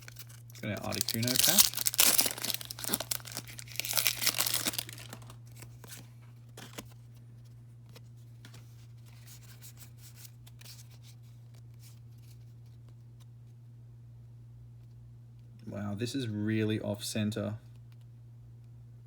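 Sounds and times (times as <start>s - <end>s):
wrapper tearing and crinkling: 0.0s - 6.0s
faint low hum: 0.0s - 19.0s.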